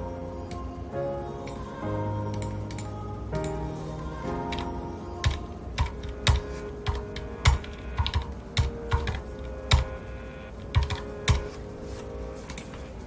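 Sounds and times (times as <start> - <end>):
soft background music: 0.0 - 13.0
mechanical keyboard typing: 4.5 - 10.0, 10.7 - 11.5.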